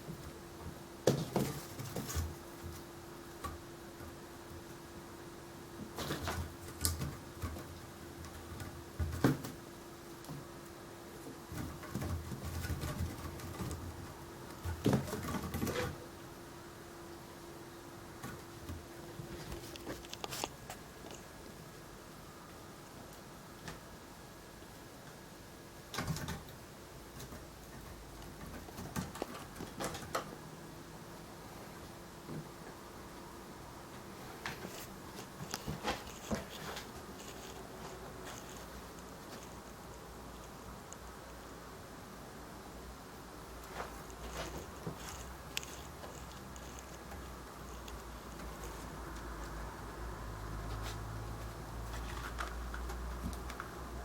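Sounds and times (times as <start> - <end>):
kittens' paws thumping and scrabbling: 0.0 - 4.7, 5.8 - 9.7, 11.5 - 16.0, 25.9 - 30.4, 34.4 - 39.6, 43.7 - 49.6
faint steady hum: 0.0 - 54.0.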